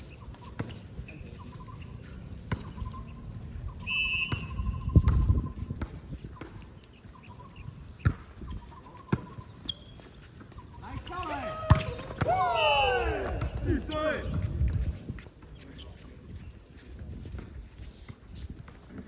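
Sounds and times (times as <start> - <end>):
sneakers squeaking on floor: 0.0 - 13.0
basketball bouncing: 0.4 - 0.8, 2.4 - 3.0, 4.2 - 6.7, 7.9 - 9.9, 11.6 - 12.4
whistle blast: 3.8 - 5.2, 12.4 - 13.1.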